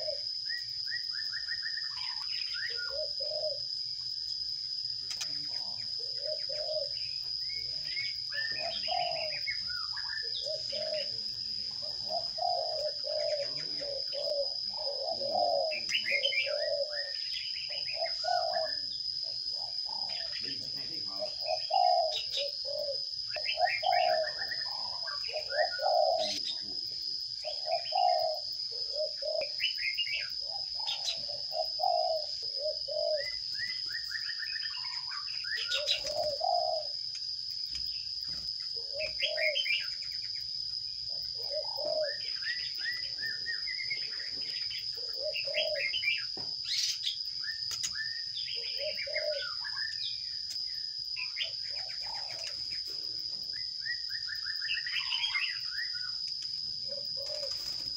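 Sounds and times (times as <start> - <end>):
low cooing notes: 10.4 - 17.1.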